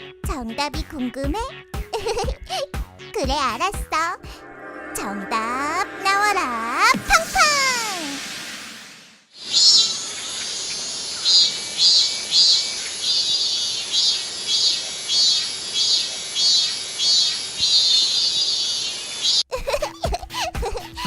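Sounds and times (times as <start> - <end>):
cicadas buzzing in pulses: 9.4 - 19.4.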